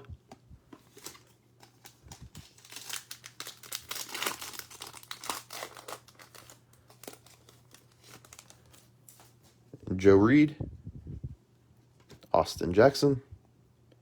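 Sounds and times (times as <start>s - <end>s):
wrapper tearing and crinkling: 0.9s - 9.4s.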